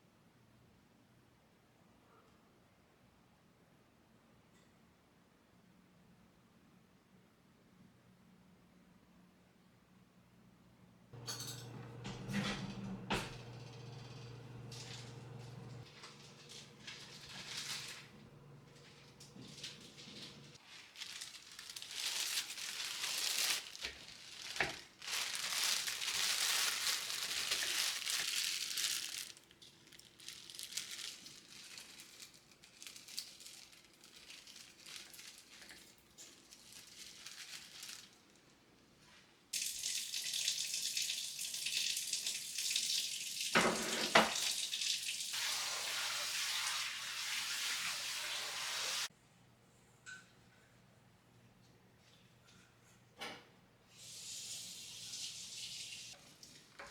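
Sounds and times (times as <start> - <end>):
dishes clunking: 11.2 - 13.5
tap running into a sink: 43.4 - 44.8.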